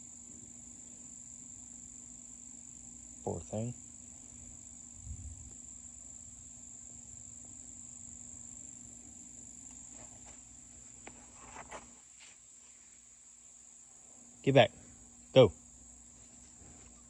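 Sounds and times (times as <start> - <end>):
high-pitched insect chorus: 0.0 - 17.0
faint rustles: 9.7 - 13.2, 16.1 - 17.0.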